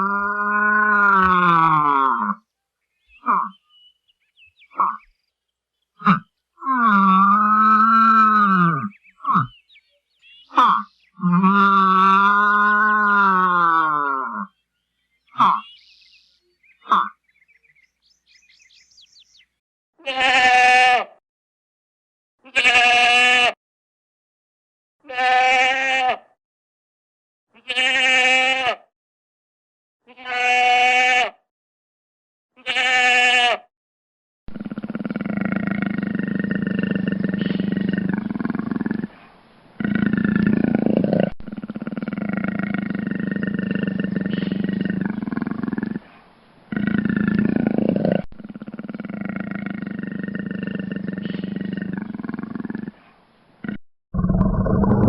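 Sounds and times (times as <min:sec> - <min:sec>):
animal bleating: 0:15.4 - 0:15.7, 0:20.0 - 0:21.2, 0:22.4 - 0:23.6, 0:25.0 - 0:26.3, 0:27.6 - 0:28.9, 0:30.0 - 0:31.4, 0:32.6 - 0:33.7, 0:34.5 - 0:39.2, 0:41.4 - 0:47.6, 0:48.3 - 0:53.8.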